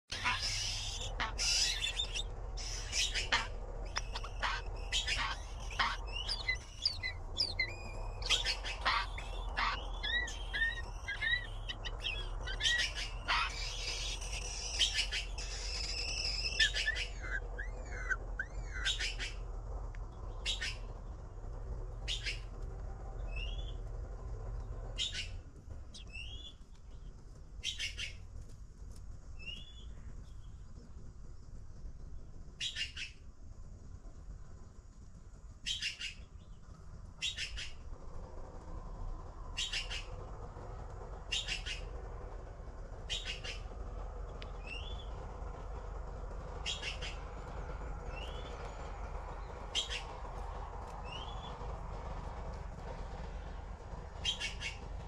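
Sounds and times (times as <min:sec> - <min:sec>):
low steady hum: 0:00.0 - 0:55.0
nestlings begging calls: 0:00.1 - 0:19.4.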